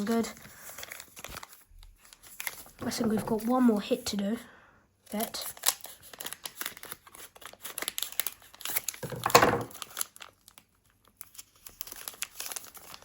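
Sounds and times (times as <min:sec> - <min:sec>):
plastic wrapper crinkling: 0:00.0 - 0:03.5, 0:05.2 - 0:13.0.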